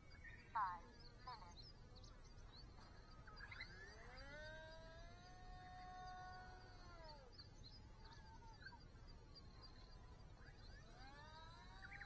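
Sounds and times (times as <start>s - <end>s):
model plane motor whine: 2.6s - 12.0s.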